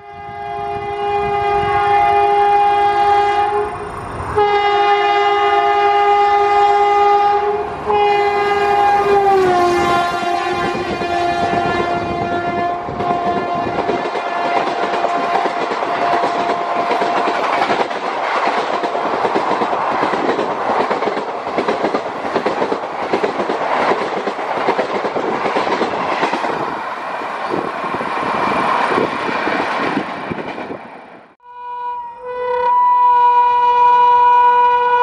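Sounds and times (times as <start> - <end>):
train horn: 0.0 - 17.3, 31.4 - 35.0
train coaches rushing past: 0.7 - 31.4
clickety-clack of train wheels: 7.8 - 31.2.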